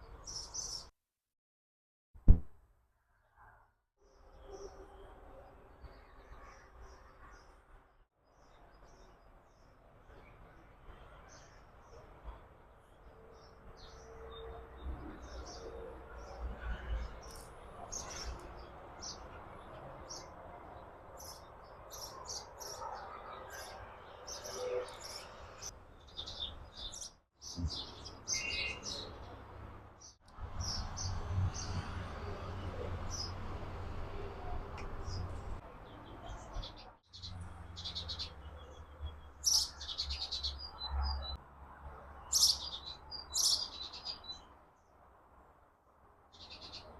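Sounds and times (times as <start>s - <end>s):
birds chirping: 21.2s - 31.8s, 34.8s - 41.4s.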